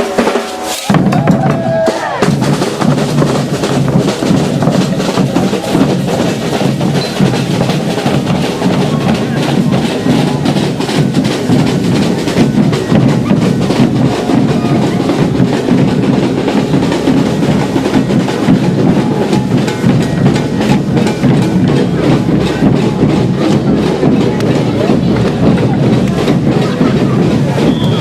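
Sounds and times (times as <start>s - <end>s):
bass and snare drums beating: 0.0s - 28.0s.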